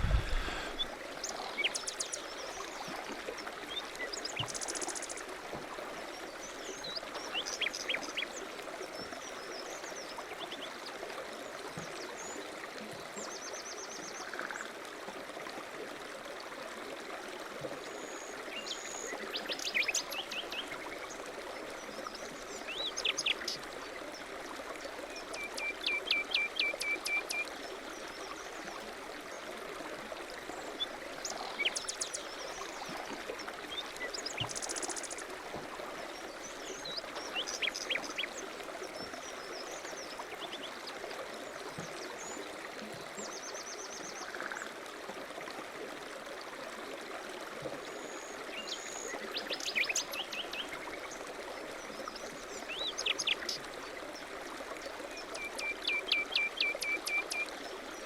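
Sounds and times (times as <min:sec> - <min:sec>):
steady rushing noise: 0:00.0 - 0:00.8.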